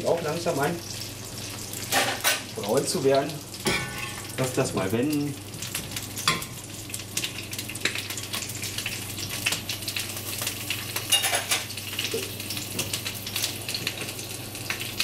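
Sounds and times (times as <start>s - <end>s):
vegetables sizzling in oil: 0.0s - 15.0s
metal spoon clinking on pan: 3.6s - 4.3s, 11.1s - 11.7s.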